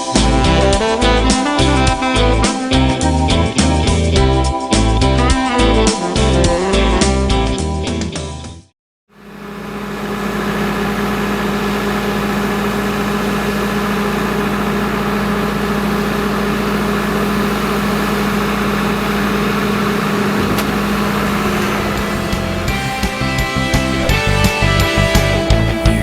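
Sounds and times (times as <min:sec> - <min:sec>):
background music: 0:00.0 - 0:08.7, 0:21.8 - 0:26.0
skid steer loader engine running: 0:09.2 - 0:26.0.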